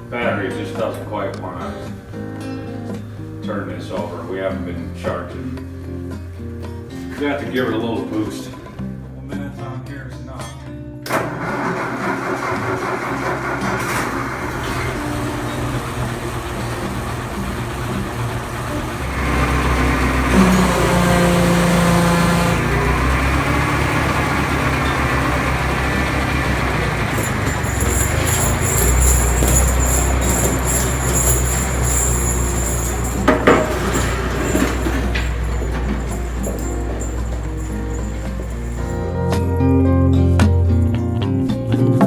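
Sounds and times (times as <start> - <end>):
tractor engine running: 11.2 - 39.4.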